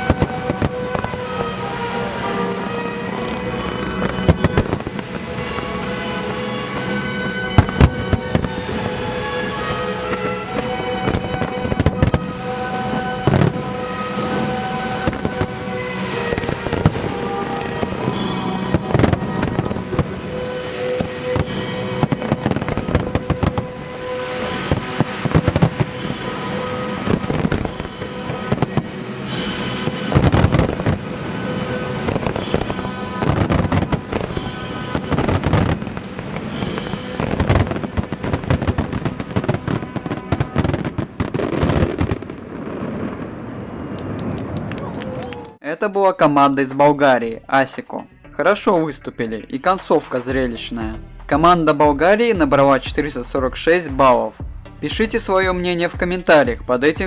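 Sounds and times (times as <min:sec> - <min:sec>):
music playing: 0:00.0 - 0:43.2, 0:46.2 - 0:57.0
fireworks bursting: 0:00.0 - 0:45.5
fireworks crackling: 0:00.0 - 0:45.6.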